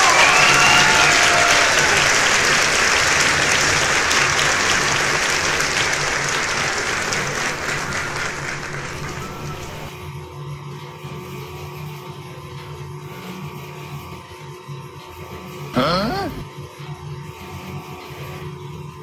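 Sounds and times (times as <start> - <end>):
applause: 0.0 - 9.9
cheering: 0.0 - 9.9.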